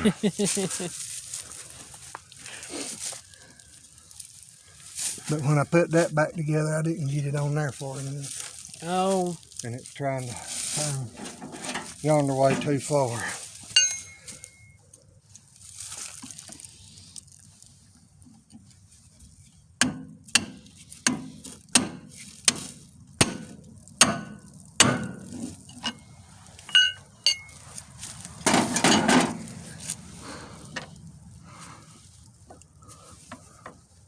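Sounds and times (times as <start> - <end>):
metal scraping: 10.6 - 14.7, 25.0 - 31.0.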